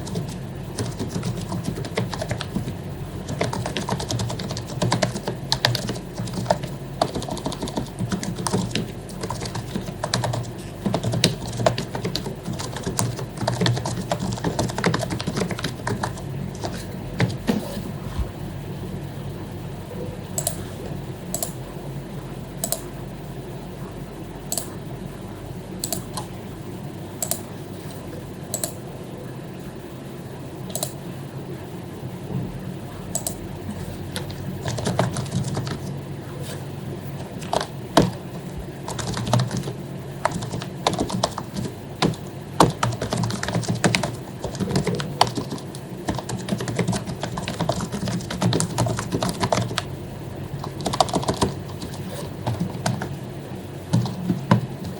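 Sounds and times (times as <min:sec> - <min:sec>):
keyboard typing: 0:00.0 - 0:17.6, 0:20.3 - 0:20.7, 0:21.3 - 0:21.6, 0:22.6 - 0:22.9, 0:25.8 - 0:26.3, 0:27.2 - 0:27.5, 0:28.5 - 0:28.8, 0:30.7 - 0:31.0, 0:33.1 - 0:35.9, 0:37.1 - 0:49.9, 0:50.5 - 0:54.9
low background hum: 0:00.0 - 0:54.9.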